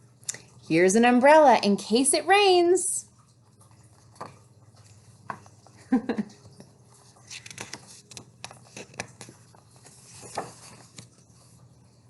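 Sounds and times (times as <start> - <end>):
paper rustling: 6.9 - 11.5.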